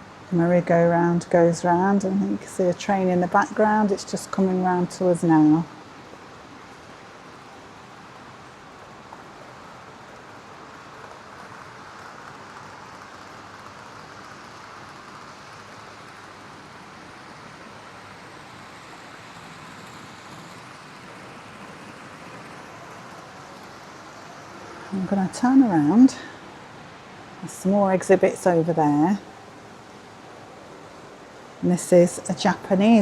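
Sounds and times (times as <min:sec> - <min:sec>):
model trains whirring: 0:00.0 - 0:33.0.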